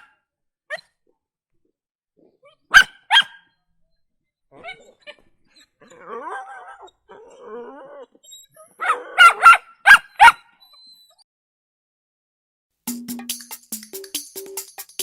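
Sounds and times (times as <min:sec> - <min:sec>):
puppy yipping barks: 0:00.0 - 0:01.0, 0:02.5 - 0:03.6, 0:08.5 - 0:11.2
puppy whining: 0:04.5 - 0:11.3.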